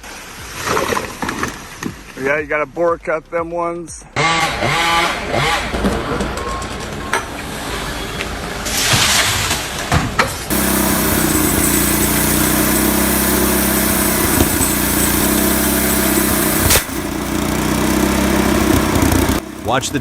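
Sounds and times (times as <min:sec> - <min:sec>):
chainsaw engine running: 0:04.2 - 0:05.9, 0:10.5 - 0:20.0.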